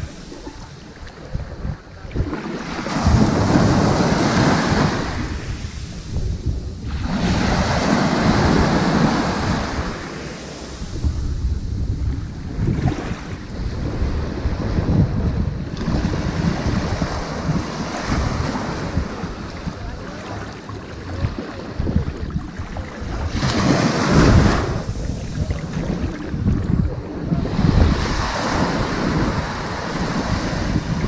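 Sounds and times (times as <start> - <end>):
ocean waves washing onto beach: 0.0 - 31.0
wind buffeting microphone: 0.0 - 31.0
large wave breaking: 2.2 - 14.6, 21.9 - 31.0.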